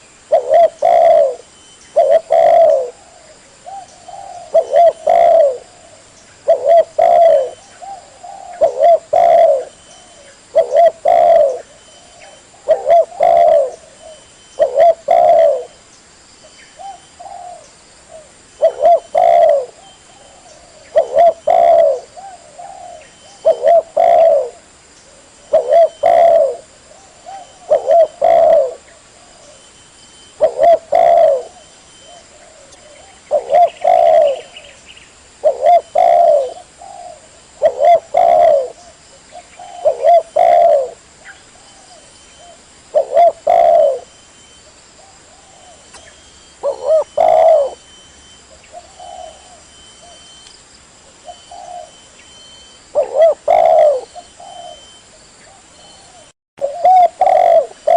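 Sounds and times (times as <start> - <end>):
dove cooing: 0.0 - 15.8, 16.8 - 34.8, 35.4 - 44.3, 45.0 - 50.4, 51.1 - 57.9.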